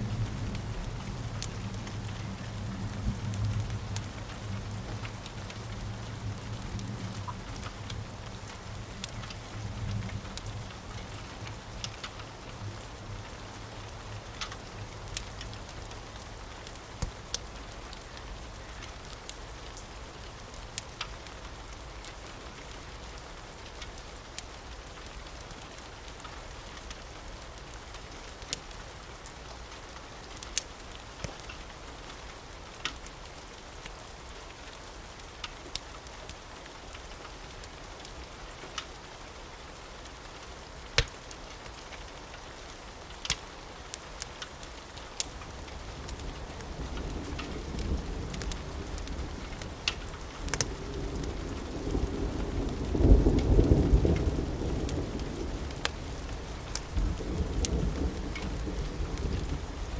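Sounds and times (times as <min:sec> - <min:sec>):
steady rain: 0:00.0 - 0:59.9
wood fire crackling and popping: 0:00.1 - 0:13.4, 0:14.1 - 0:27.0, 0:30.4 - 0:33.4, 0:40.1 - 0:59.8
low thunder rumble: 0:45.5 - 0:59.9.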